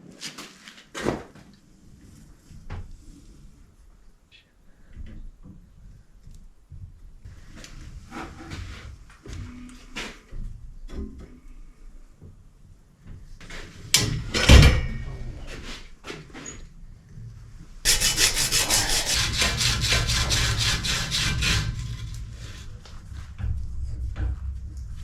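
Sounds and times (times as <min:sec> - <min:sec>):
metal clank with ring: 0:14.5 - 0:15.5
rasping on metal pipe: 0:17.9 - 0:23.2.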